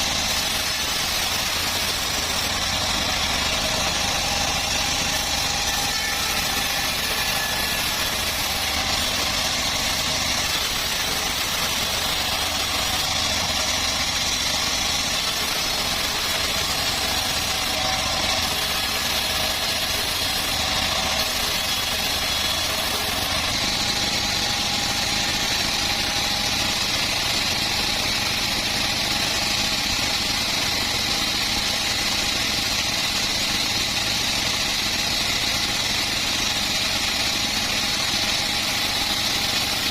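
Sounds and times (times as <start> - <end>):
bandsaw sawing log: 0.0 - 39.9.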